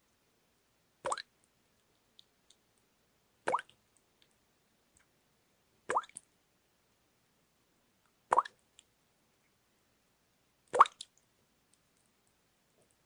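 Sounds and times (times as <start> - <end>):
water drops plopping: 5.9 - 6.2, 10.8 - 11.1.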